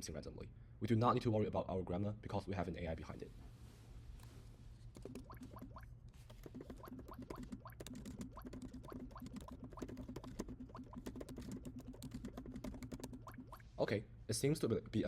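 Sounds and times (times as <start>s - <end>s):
rapid keyboard typing: 5.0s - 13.6s.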